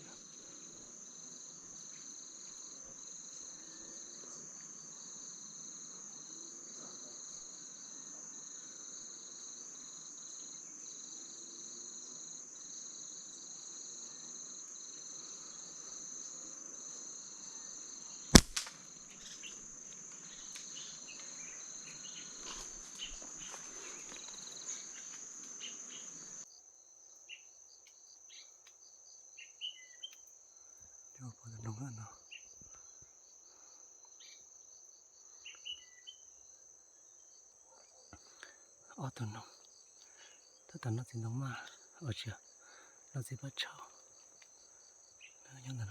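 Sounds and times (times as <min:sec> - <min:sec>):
insects trilling: 0:00.0 - 0:45.9
slingshot snap: 0:18.4 - 0:18.8.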